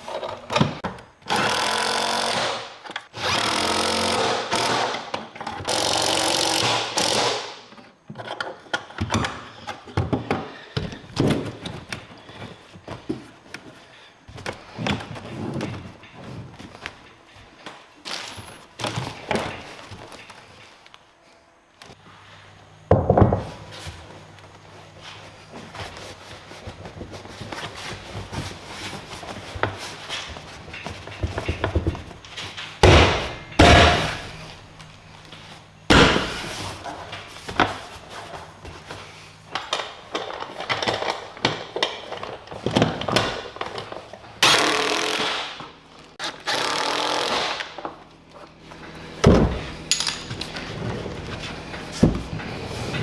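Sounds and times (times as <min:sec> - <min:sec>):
loud thuds: 0:32.8 - 0:34.6, 0:35.9 - 0:36.8
tools clicking and knocking: 0:49.9 - 0:50.6.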